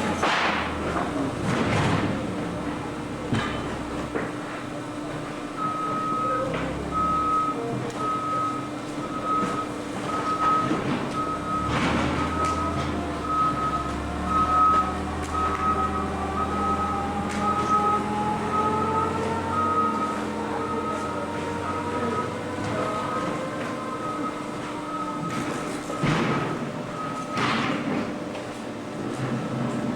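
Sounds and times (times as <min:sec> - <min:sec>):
machinery humming: 0:00.0 - 0:29.9
backup alarm beeping: 0:05.5 - 0:27.5.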